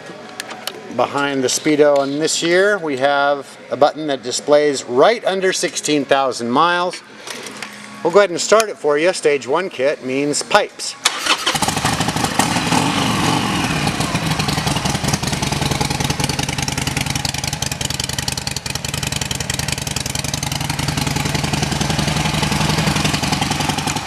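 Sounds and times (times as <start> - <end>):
motorcycle engine idling: 11.2 - 24.0.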